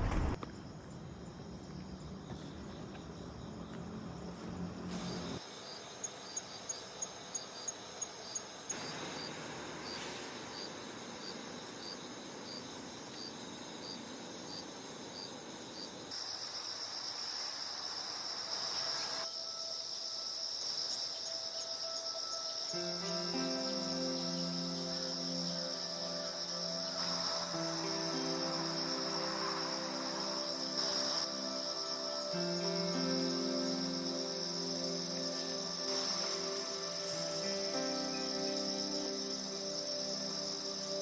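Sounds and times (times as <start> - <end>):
crickets chirping: 0.0 - 41.0
loud high insect trill: 0.0 - 41.0.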